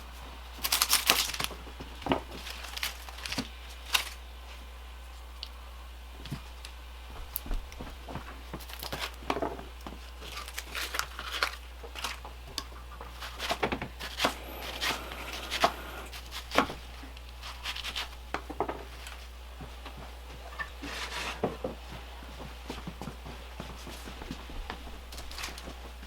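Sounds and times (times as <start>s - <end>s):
rustling and crinkling: 9.9s - 12.3s.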